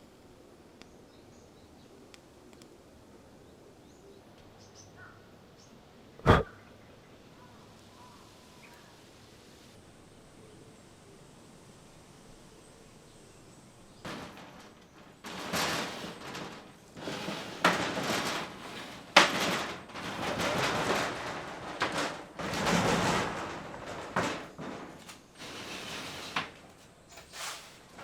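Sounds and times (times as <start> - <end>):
scraping and rustling: 13.8 - 28.0.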